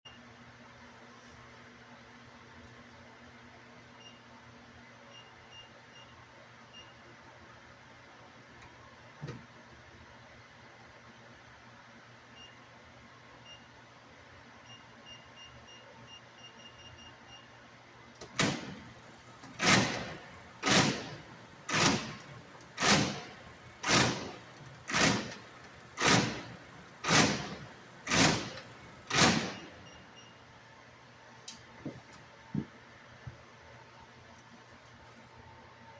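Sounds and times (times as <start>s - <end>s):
machine clunking: 18.2s - 29.9s
faint beeps: 29.8s - 30.5s.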